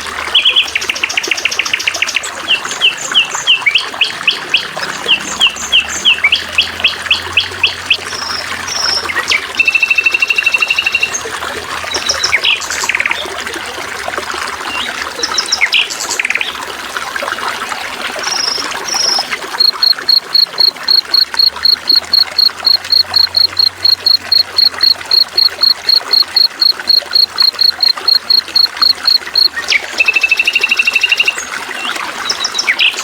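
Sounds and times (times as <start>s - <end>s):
water trickling: 0.0s - 33.0s
fast high bird pips: 19.0s - 31.5s
bird buzzy trill: 19.6s - 31.4s.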